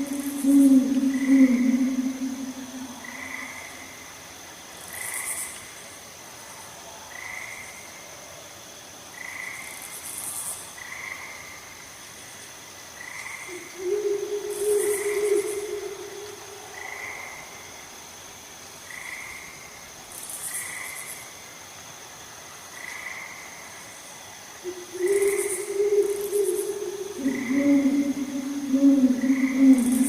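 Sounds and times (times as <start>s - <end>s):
short high frog call: 0.0s - 3.8s, 13.5s - 17.3s, 24.7s - 30.0s
low drawn-out frog call: 0.0s - 3.9s, 13.5s - 17.4s, 24.6s - 30.0s
high insect drone: 0.0s - 30.0s.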